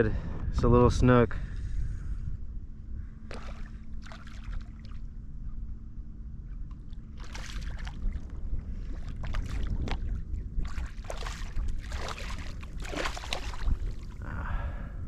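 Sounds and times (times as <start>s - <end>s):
wind rumble on microphone: 0.0s - 15.0s
water splashing at kayak: 3.3s - 5.0s, 7.2s - 14.2s.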